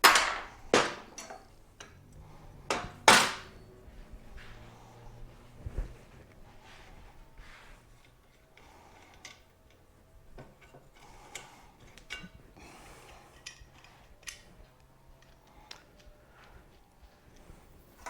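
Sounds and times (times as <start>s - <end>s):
hand tools clicking and clinking: 0.0s - 3.8s, 8.0s - 18.0s.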